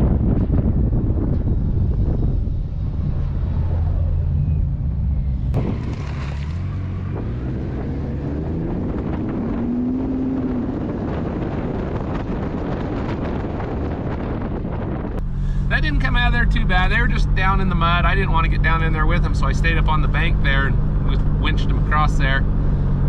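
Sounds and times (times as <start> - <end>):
vehicle engine running: 0.0 - 23.0
wind noise on microphone: 0.0 - 23.0.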